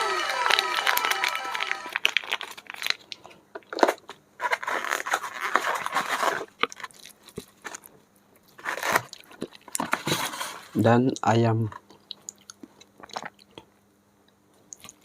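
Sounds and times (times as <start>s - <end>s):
scraping and rustling: 3.7s - 7.9s, 8.6s - 10.8s.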